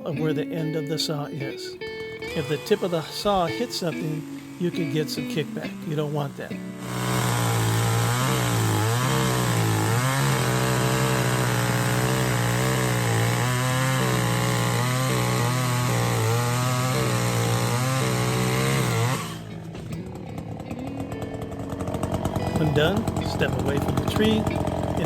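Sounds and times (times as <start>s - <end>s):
chainsaw cutting into stump: 1.9s - 25.0s.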